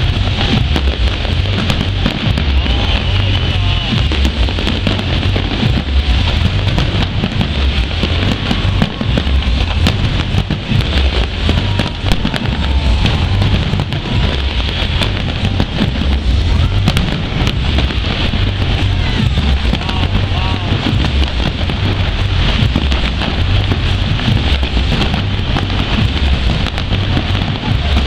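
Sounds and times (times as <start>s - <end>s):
fireworks bangs and crackles: 0.0s - 28.0s
low booming rumble: 0.0s - 28.0s.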